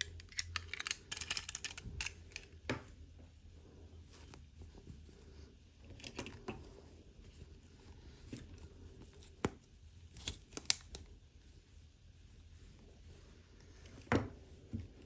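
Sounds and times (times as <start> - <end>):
plastic toy pieces clicking: 0.0 - 2.4.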